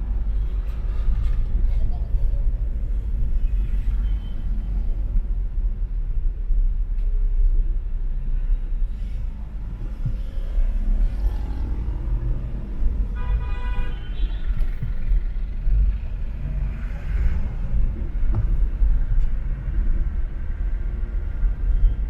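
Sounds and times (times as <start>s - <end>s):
road traffic rumble: 0.0s - 22.0s
car horn honking: 13.1s - 14.6s.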